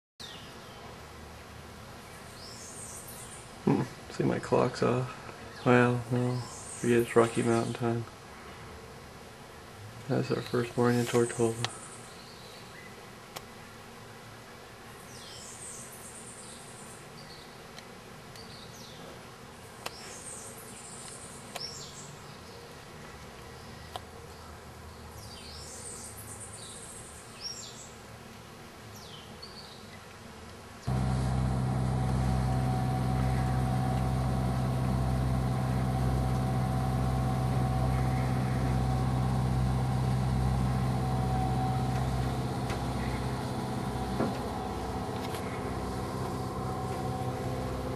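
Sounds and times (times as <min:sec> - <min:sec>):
birds chirping: 0:30.9 - 0:47.9
engine drone with whine: 0:30.9 - 0:47.9.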